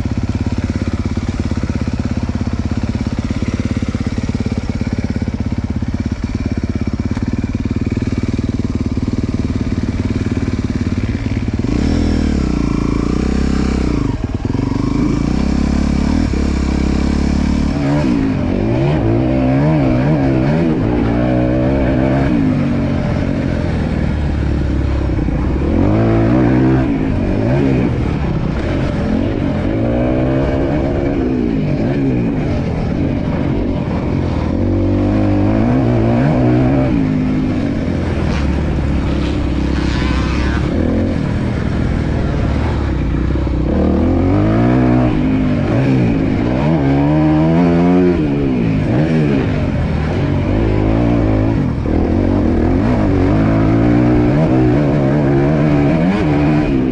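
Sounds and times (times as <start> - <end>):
motocross bike engine revving: 0.0 - 56.9.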